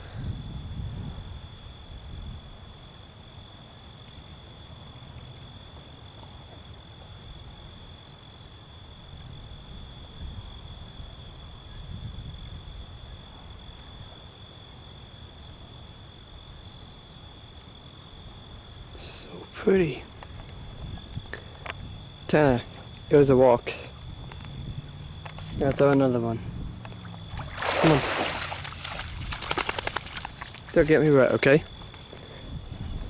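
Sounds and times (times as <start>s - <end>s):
faint pulsing insect note: 0.0s - 4.0s, 7.1s - 33.0s
crickets trilling: 0.0s - 33.0s
low uneven rumble: 19.9s - 33.0s.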